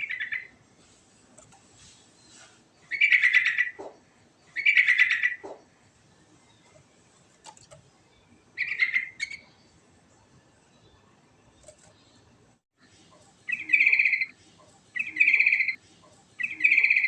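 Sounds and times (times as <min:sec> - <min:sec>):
bird chattering song: 0:00.0 - 0:00.5, 0:02.2 - 0:05.8, 0:08.0 - 0:09.8, 0:13.4 - 0:15.8, 0:16.4 - 0:17.0.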